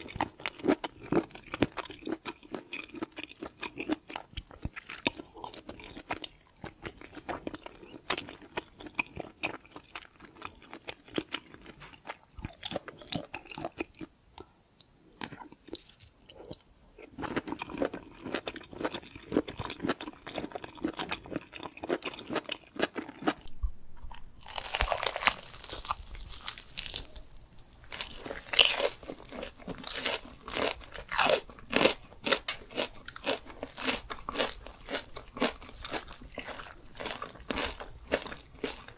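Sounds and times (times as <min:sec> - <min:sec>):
chewing and crunching food: 0:00.0 - 0:38.9.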